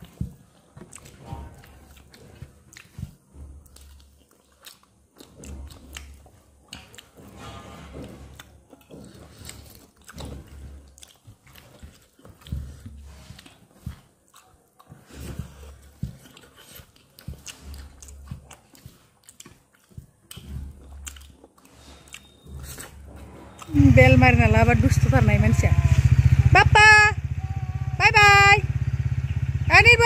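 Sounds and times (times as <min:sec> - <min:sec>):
person chewing and biting: 0:00.0 - 0:07.4, 0:08.0 - 0:23.7.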